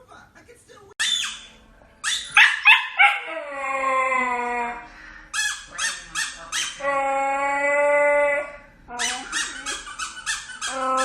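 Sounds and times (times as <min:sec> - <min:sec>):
dog barking: 0:02.1 - 0:03.3
dog howling: 0:02.4 - 0:04.9, 0:06.7 - 0:09.4, 0:10.6 - 0:11.0.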